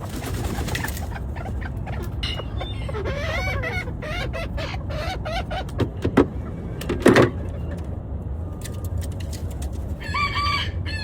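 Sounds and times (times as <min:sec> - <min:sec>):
chicken clucking: 0:00.0 - 0:06.5
steady low rumble: 0:00.0 - 0:10.0.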